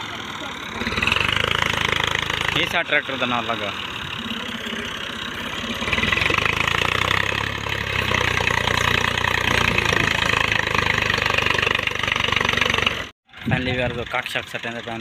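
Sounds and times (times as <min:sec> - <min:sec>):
tractor engine straining: 0:00.0 - 0:15.0.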